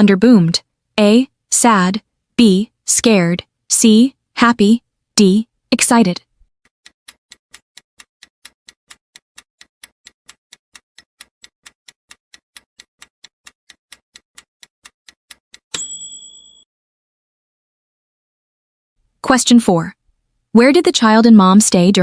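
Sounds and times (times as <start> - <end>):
bright ringing ding: 15.7 - 16.6.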